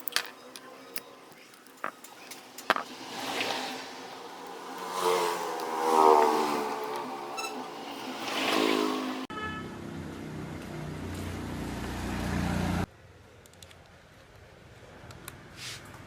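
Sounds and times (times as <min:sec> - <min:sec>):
power tool motor pitch rising and falling: 0:02.7 - 0:08.8.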